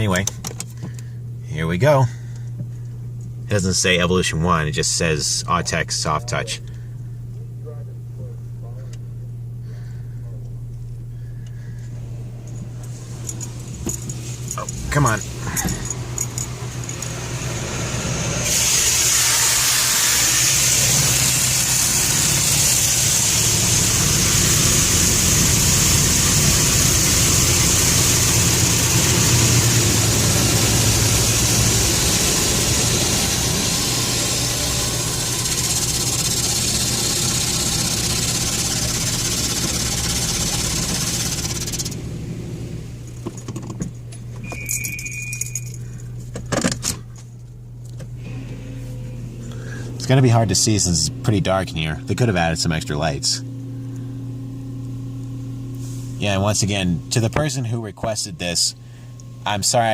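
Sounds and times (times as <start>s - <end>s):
car engine idling: 4.8s - 57.8s
high-pressure water spray on car: 16.0s - 42.2s
short beep: 44.4s - 45.8s.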